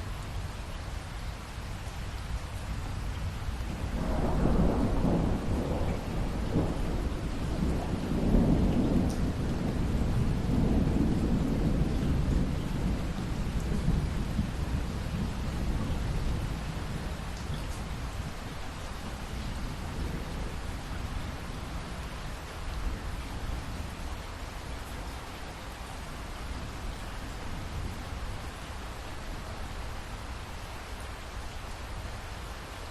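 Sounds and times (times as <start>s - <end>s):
steady rain: 0.0s - 32.9s
rolling thunder: 3.8s - 22.0s.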